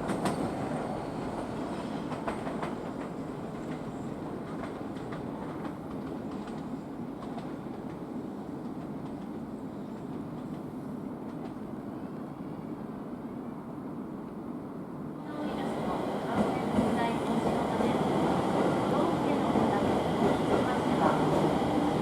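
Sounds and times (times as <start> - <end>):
train wheels clicking over joints: 0.0 - 8.0
train running noise: 0.0 - 11.8, 15.2 - 22.0.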